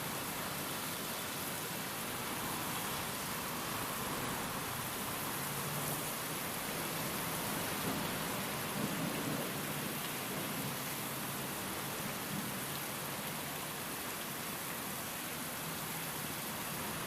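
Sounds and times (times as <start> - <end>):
rain hissing: 0.0 - 12.6.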